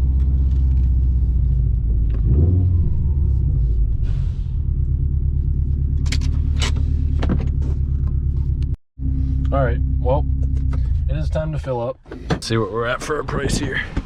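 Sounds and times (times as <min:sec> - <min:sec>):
car engine rumbling at idle: 0:03.2 - 0:12.0.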